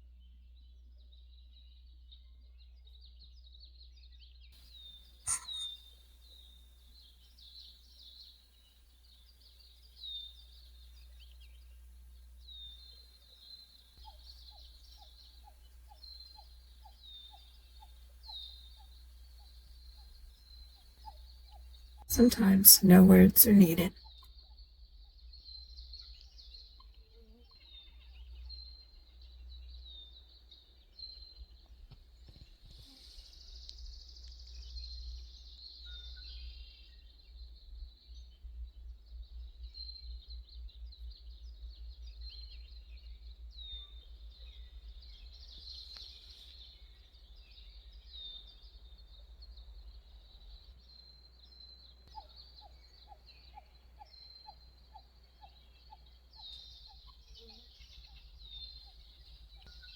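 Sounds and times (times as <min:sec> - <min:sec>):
small birds chirping: 0:04.7 - 0:23.9, 0:43.5 - 0:59.9.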